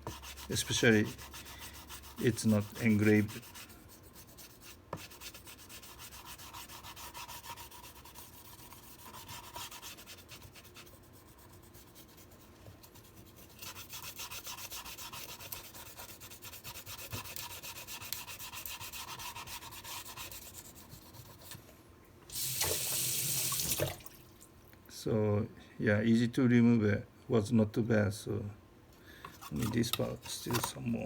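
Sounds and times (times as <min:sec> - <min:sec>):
scrubbing a knife blade: 0:00.0 - 0:21.6, 0:29.4 - 0:31.0
tap water running: 0:22.3 - 0:24.5.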